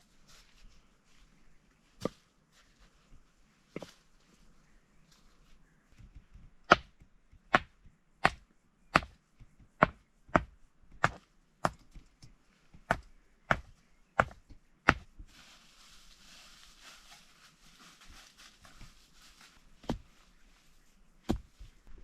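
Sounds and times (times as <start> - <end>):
wood being chopped: 6.6 - 11.9, 12.8 - 15.1, 21.3 - 21.6.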